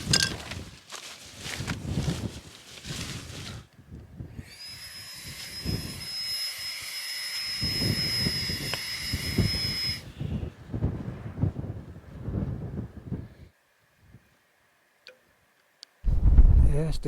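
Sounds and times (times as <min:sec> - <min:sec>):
wind gusting against microphone: 0:07.6 - 0:14.2, 0:16.0 - 0:17.0.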